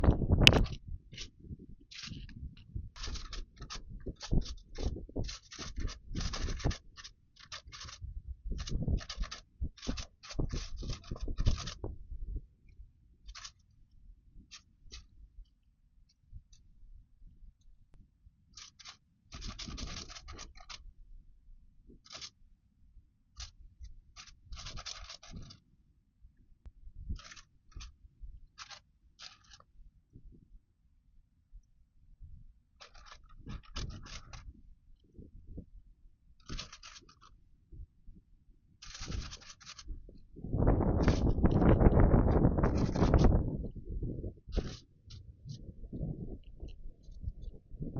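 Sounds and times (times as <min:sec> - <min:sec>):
book pages turning: 0:24.2 - 0:25.6.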